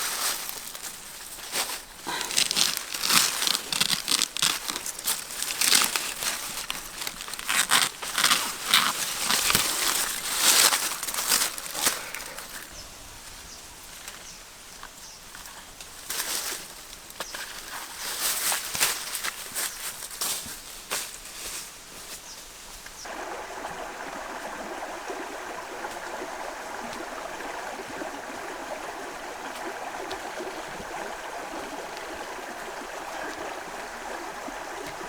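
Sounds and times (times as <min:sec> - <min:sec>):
crinkling and rustling: 0:00.0 - 0:12.7.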